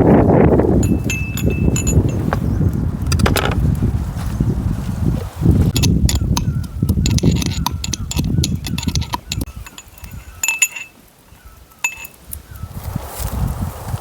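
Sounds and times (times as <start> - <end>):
wind buffeting microphone: 0.0 - 14.0
sharp metallic clinks: 0.7 - 2.6, 5.7 - 12.2.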